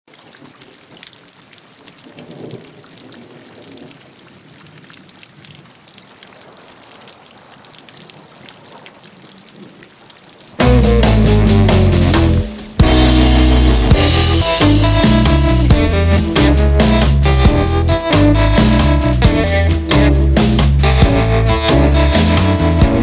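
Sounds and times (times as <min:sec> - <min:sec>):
steady rain falling: 0:00.1 - 0:23.0
loud band music with guitar: 0:10.6 - 0:23.0.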